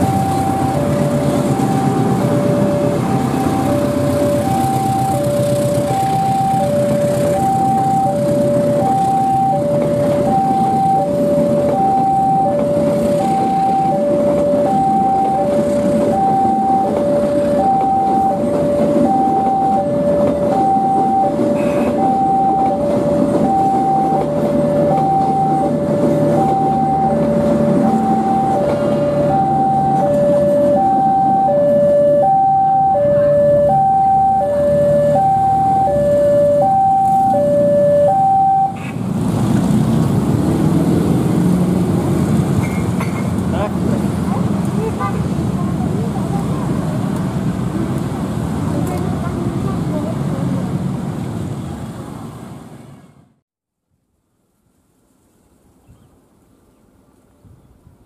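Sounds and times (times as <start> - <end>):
high-pitched beeping: 0.0 - 38.8
level crossing two-tone alarm: 0.0 - 38.8.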